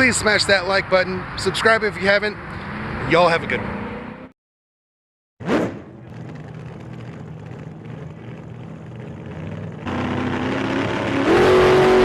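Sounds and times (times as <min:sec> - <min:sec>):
car exhaust rumbling and revving: 0:05.4 - 0:12.0.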